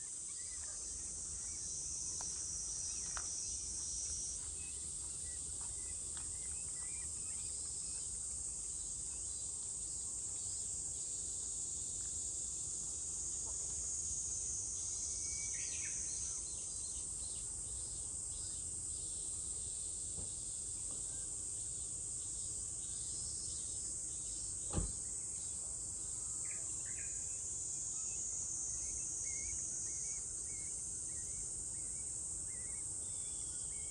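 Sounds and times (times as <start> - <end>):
small birds chirping: 0.0 - 10.6, 28.0 - 33.9
cicadas droning: 0.0 - 33.9.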